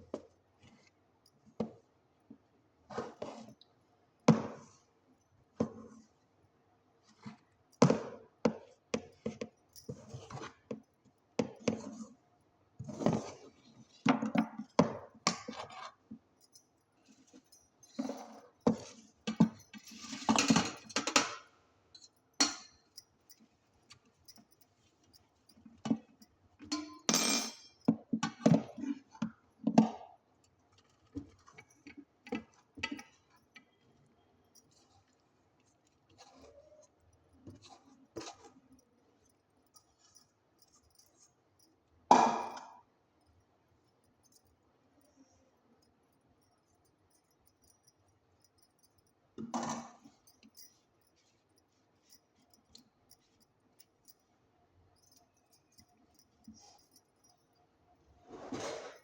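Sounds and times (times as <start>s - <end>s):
kitchen utensils clinking: 26.7s - 27.8s.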